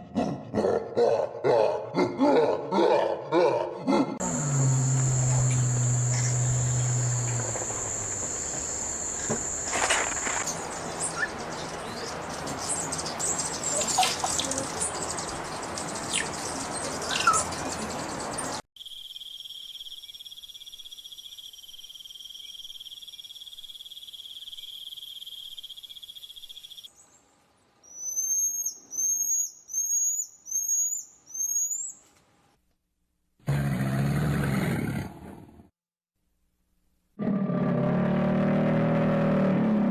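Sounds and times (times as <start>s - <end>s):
insect chorus: 4.2s - 17.2s, 18.0s - 26.9s
bird chirps rising: 27.9s - 31.9s.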